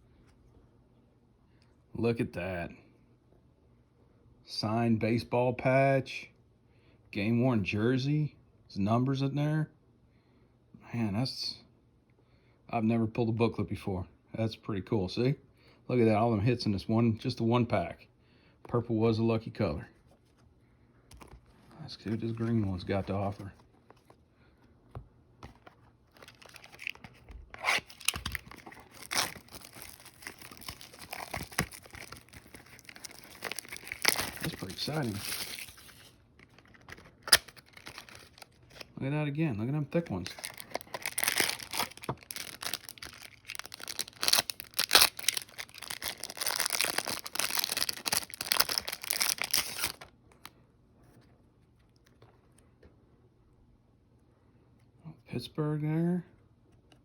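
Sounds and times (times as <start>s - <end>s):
card packaging clicks: 25.4s - 35.8s, 36.4s - 38.8s
packaging ripping and crinkling: 25.5s - 38.9s, 40.0s - 50.4s.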